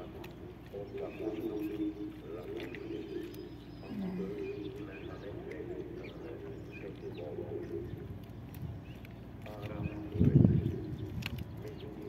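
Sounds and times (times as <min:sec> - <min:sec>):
low wavering cooing: 0:00.0 - 0:08.0.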